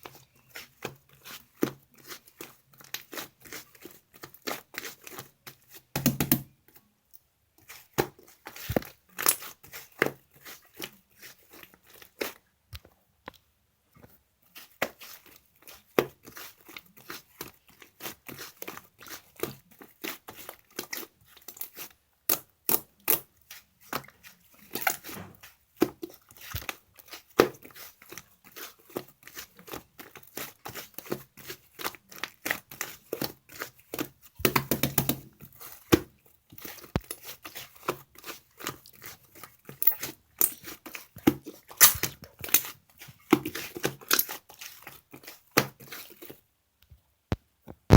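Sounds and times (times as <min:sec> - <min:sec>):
slime clicking and crackling: 0:14.6 - 0:46.3.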